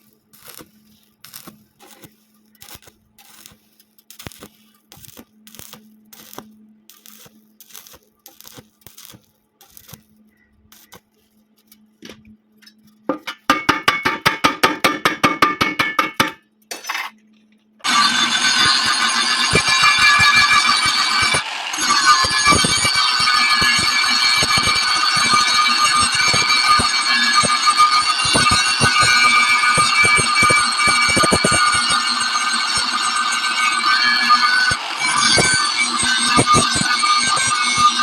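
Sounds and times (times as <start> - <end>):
stick welding crackling: 0.0 - 12.0, 17.8 - 38.0
loud steady noise: 17.9 - 38.0.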